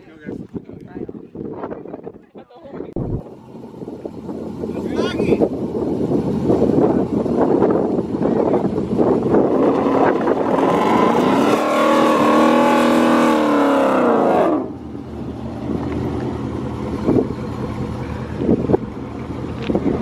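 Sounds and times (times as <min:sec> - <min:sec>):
engines idling: 0:03.0 - 0:20.0
tyres spinning in a burnout: 0:03.8 - 0:14.8
car engine revving hard: 0:08.7 - 0:14.9.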